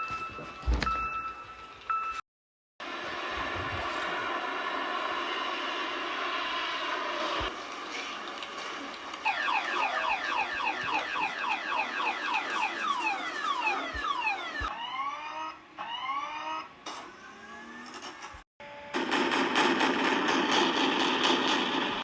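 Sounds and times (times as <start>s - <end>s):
engine-like drone: 2.8s - 14.0s.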